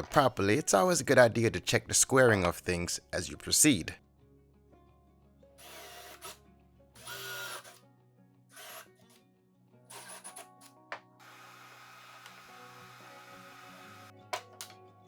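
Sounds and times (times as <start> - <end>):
quiet background music: 0.0 - 15.0
power drill running: 5.6 - 6.4, 7.0 - 7.8, 8.5 - 8.9, 11.2 - 14.1.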